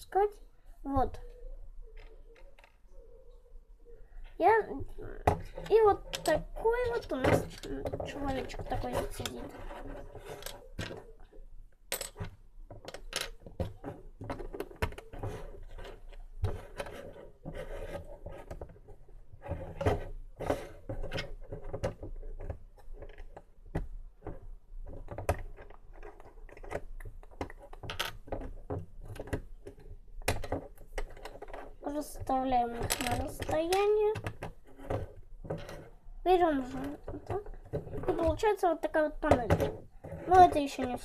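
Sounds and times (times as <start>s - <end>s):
plastic parts scraping: 4.9s - 11.3s, 12.1s - 23.5s, 24.2s - 41.0s
plastic bricks clicking together: 11.9s - 15.1s.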